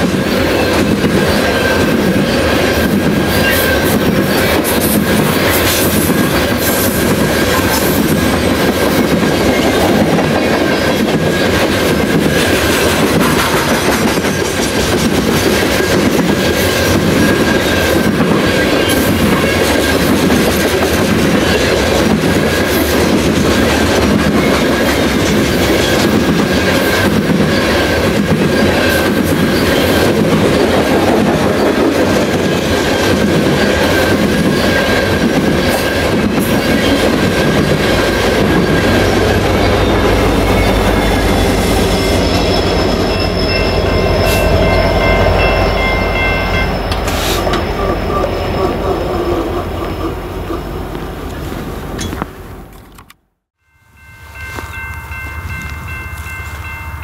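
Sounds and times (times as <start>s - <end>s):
freight train wheels rumbling: 0.0s - 53.2s
wheels clacking on rails: 0.0s - 53.2s.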